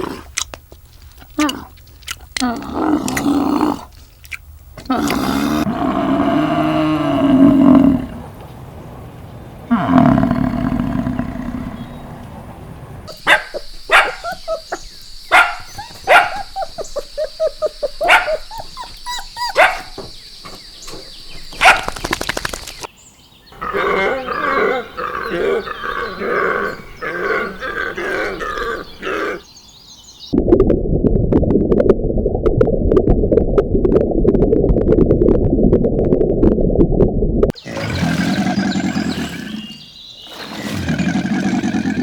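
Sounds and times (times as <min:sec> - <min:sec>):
roar: 0:02.5 - 0:03.9, 0:04.9 - 0:08.2, 0:09.7 - 0:12.2, 0:23.6 - 0:29.4, 0:37.6 - 0:42.0
dog barking: 0:13.2 - 0:16.8, 0:18.0 - 0:20.0, 0:21.6 - 0:22.0.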